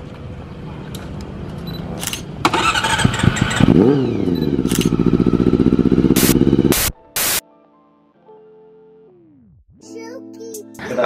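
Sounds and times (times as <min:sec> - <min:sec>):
motorcycle engine revving and idling: 0:02.4 - 0:06.9
bursts of static noise: 0:06.2 - 0:07.4.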